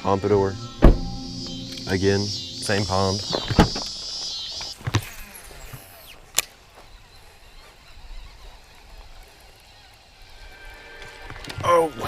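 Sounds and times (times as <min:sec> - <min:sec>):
background music: 0:00.0 - 0:04.0, 0:10.4 - 0:12.0.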